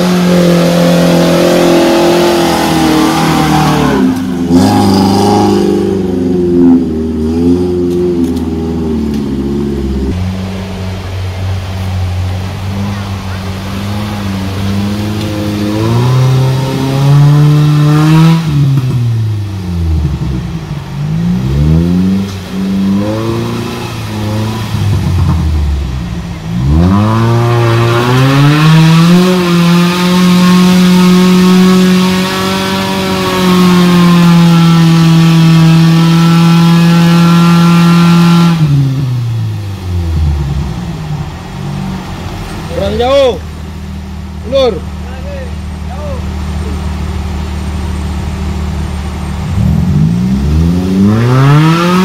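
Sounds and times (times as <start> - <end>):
engine revving hard: 0.0 - 10.2, 12.4 - 19.2, 21.1 - 39.2, 49.4 - 52.0.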